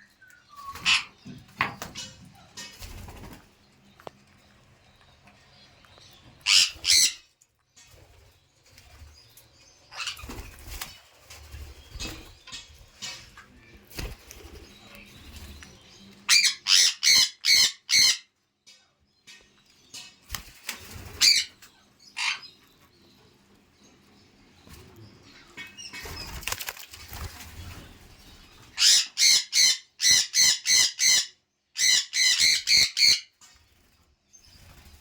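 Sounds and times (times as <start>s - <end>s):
parrot sharp calls: 6.4s - 7.2s
rustling and wing movement: 22.8s - 28.8s, 33.5s - 35.0s.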